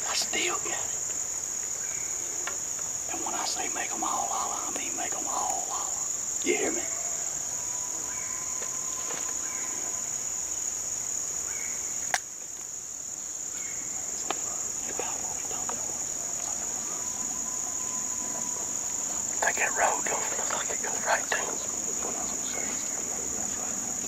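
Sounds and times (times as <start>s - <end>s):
insects trilling: 0.0s - 24.0s
faint distant tones: 13.6s - 24.0s.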